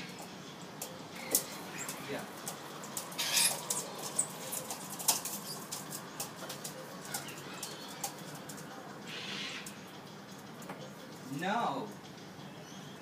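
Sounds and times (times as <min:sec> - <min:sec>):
birds flapping wings: 0:01.2 - 0:09.8.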